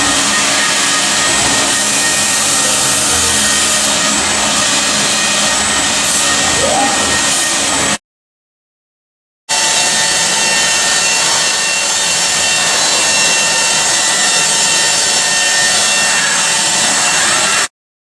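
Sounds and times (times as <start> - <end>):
power grinder grinding metal: 0.0 - 8.0.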